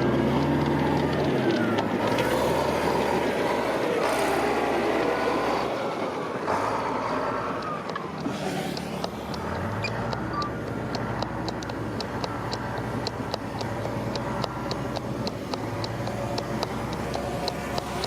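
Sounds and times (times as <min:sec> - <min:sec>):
diesel engine running: 0:00.0 - 0:18.0
light regular clicking: 0:07.5 - 0:18.0.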